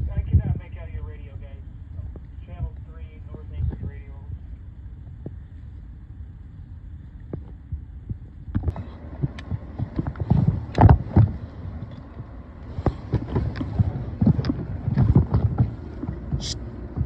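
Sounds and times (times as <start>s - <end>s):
steady low rumble: 0.0s - 17.0s
low thumps and knocks: 7.2s - 17.0s.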